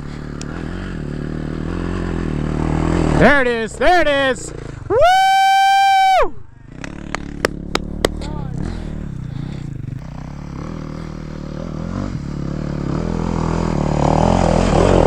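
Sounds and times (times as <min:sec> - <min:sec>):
dirt bike engine running: 0:00.0 - 0:15.0
sharp clacks: 0:06.8 - 0:08.3.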